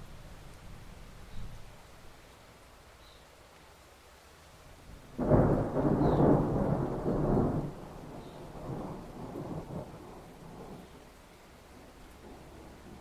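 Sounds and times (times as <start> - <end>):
thunderclap and rolling rumbles: 5.1 - 11.0, 11.8 - 13.0.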